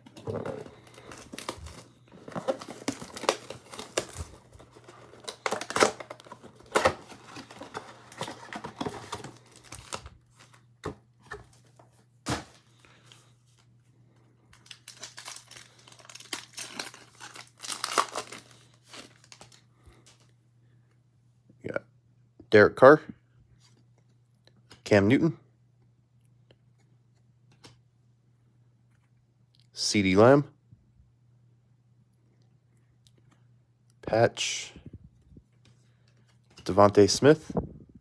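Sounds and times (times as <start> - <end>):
plastic wrapping tearing and crumpling: 0.0 - 10.2, 14.6 - 20.2.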